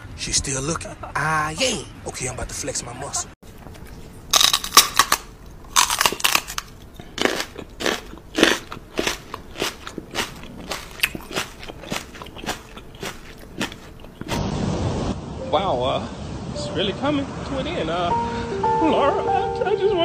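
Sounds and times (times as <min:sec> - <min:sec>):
crisp crunching and chewing: 0:03.5 - 0:14.4.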